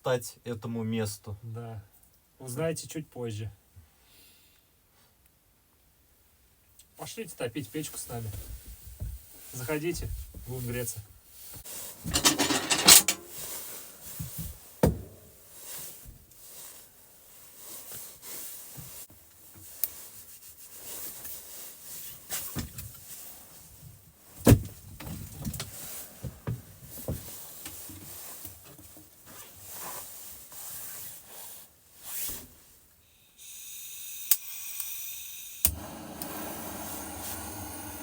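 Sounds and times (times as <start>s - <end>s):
wood rubbing and rustling: 11.4s - 15.4s.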